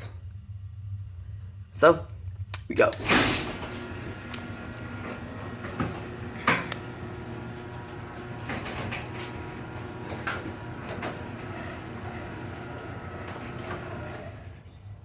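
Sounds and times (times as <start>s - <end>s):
door wheels clicking in tracks: 3.0s - 14.8s
garage door opener motor hum: 3.0s - 15.0s.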